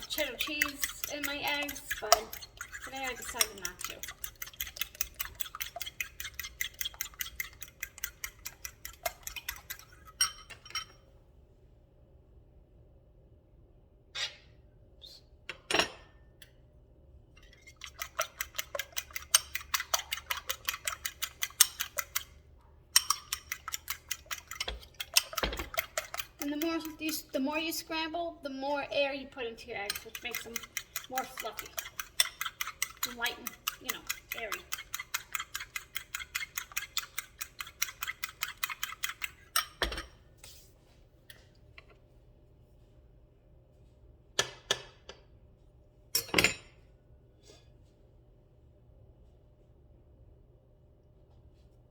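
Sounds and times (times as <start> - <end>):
fork beating eggs in bowl: 0.0 - 11.0, 17.4 - 40.7
fork clinking on bowl: 0.0 - 11.0, 17.8 - 22.3, 23.0 - 27.2, 29.8 - 40.2.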